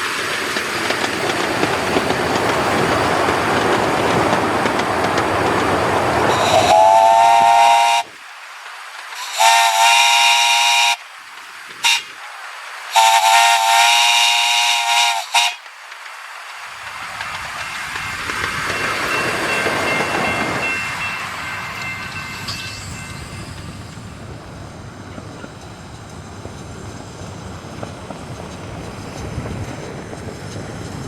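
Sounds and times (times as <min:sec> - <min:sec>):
hissing steam: 0:00.0 - 0:31.0
train chime whistle blasts: 0:06.3 - 0:08.1, 0:09.2 - 0:11.0, 0:13.0 - 0:15.6.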